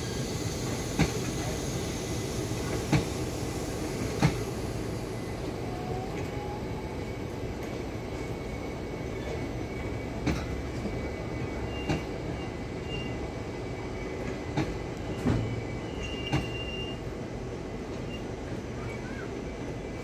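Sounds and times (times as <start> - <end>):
train wheels rumbling: 0.0 - 20.0
high-pitched wheel squeals: 15.1 - 17.0.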